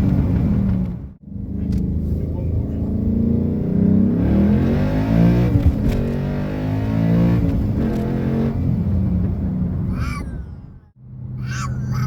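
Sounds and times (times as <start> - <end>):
engine accelerating through gears: 0.0 - 9.8.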